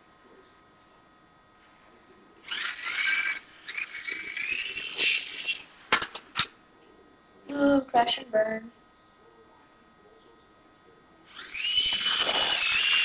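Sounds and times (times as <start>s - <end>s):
toy helicopter motor whining: 2.4s - 5.7s, 11.3s - 13.0s.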